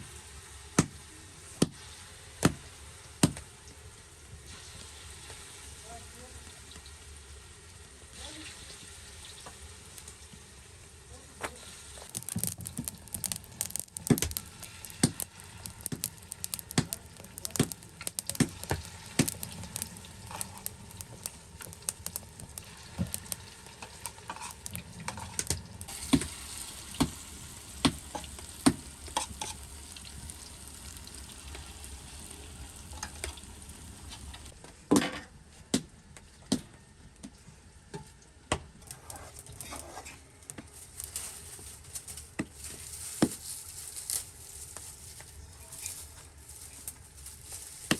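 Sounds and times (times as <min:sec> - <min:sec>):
food sizzling in a pan: 0:00.0 - 0:34.6
utensil scraping a pan: 0:12.0 - 0:30.3.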